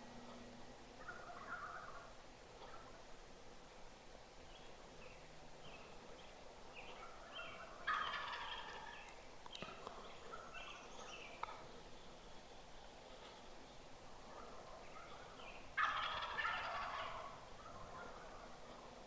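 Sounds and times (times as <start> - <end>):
turkey gobbling: 1.0 - 3.0, 5.7 - 9.2, 9.8 - 11.7, 14.2 - 18.8.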